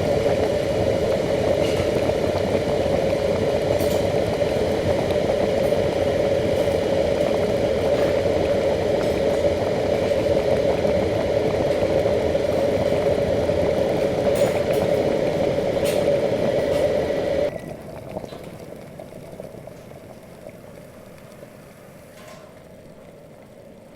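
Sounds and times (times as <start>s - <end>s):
kettle switching off: 0.0s - 18.5s
electric kettle boiling: 0.0s - 23.9s.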